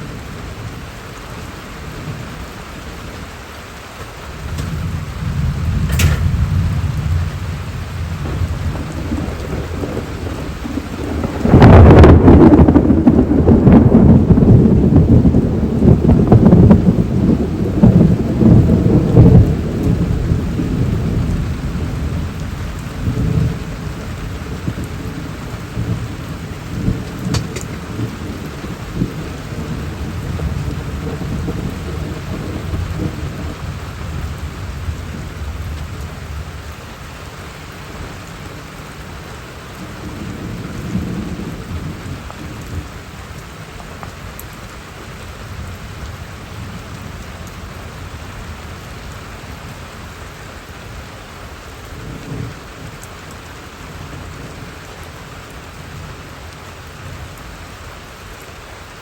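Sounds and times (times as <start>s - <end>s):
rain falling steadily: 0.0s - 59.0s
thunder rolling: 4.3s - 36.7s.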